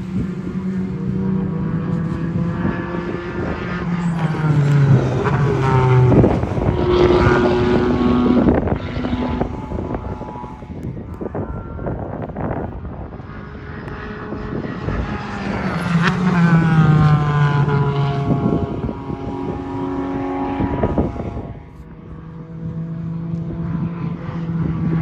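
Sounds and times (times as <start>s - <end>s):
sports car engine passing by: 0.0s - 25.0s.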